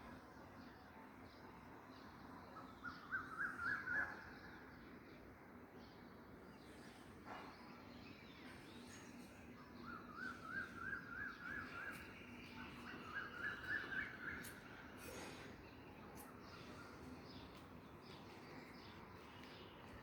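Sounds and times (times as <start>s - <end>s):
bird chirping: 7.6s - 20.0s.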